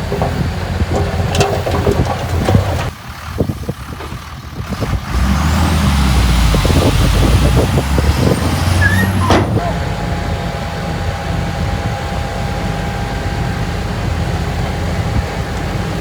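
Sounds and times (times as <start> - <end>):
rattling knocks: 0.0 - 3.0
heavy diesel engine rumbling: 0.0 - 16.0.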